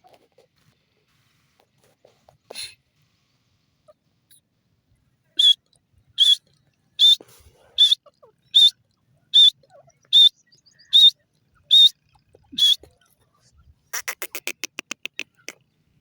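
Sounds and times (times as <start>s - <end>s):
francolin calling: 5.4s - 5.6s, 6.2s - 6.4s, 7.0s - 13.1s.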